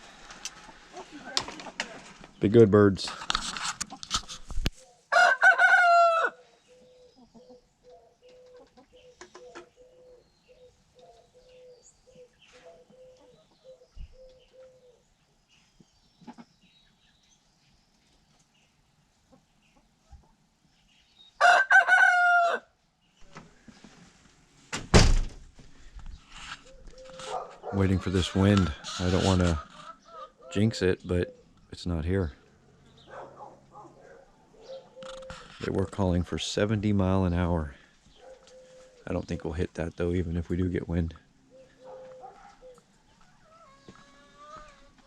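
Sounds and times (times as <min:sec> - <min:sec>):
hen clucking: 0:00.4 - 0:02.0, 0:16.2 - 0:16.6, 0:26.5 - 0:31.5, 0:41.6 - 0:45.0
rooster crowing: 0:05.1 - 0:06.4, 0:21.4 - 0:22.7.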